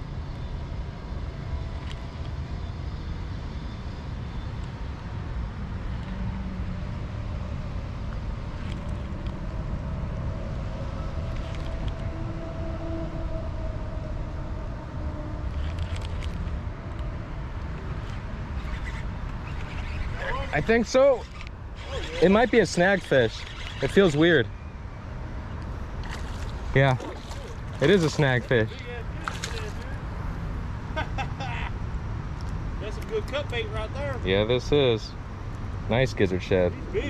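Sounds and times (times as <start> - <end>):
low outdoor background rumble: 0.0 - 37.0
faint drifting tones: 9.0 - 30.6.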